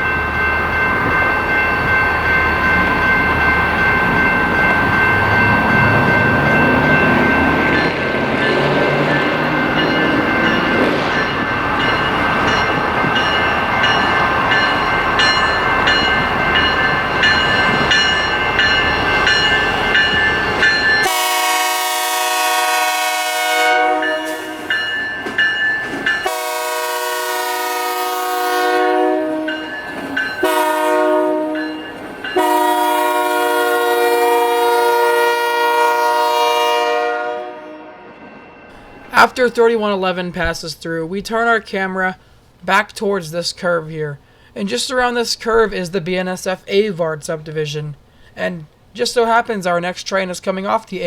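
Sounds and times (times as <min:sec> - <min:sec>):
train wheels on rails: 0:00.0 - 0:35.8
locomotive air horn chord: 0:21.0 - 0:24.7, 0:26.2 - 0:29.7, 0:30.4 - 0:31.8, 0:32.4 - 0:38.1.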